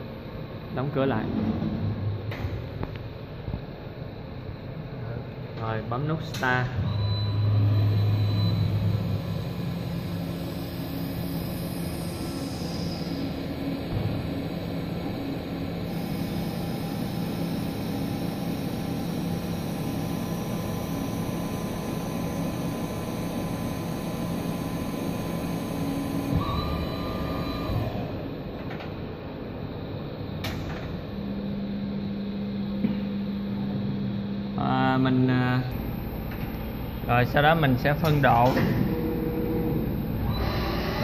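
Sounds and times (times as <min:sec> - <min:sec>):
steady machine hum: 0:00.0 - 0:41.0
lathe machine running: 0:07.8 - 0:28.6, 0:35.7 - 0:41.0.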